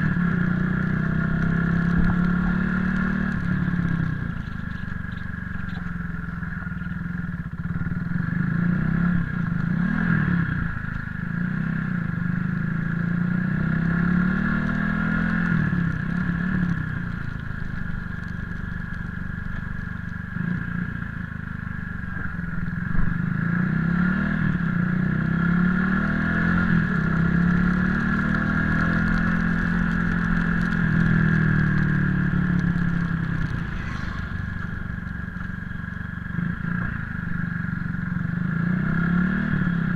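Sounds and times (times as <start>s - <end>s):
motorcycle engine revving: 0.0s - 39.9s
high-pitched whine: 32.8s - 38.0s.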